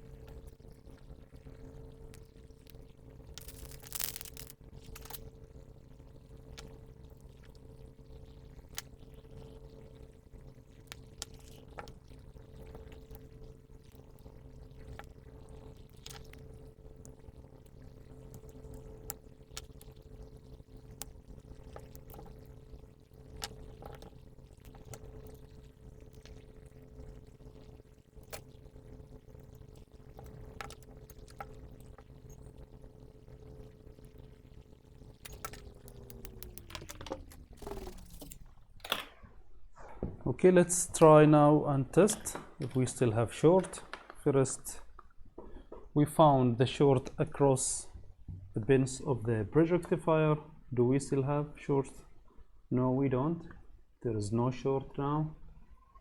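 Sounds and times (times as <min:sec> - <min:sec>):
small electric motor humming: 0:00.0 - 0:38.6.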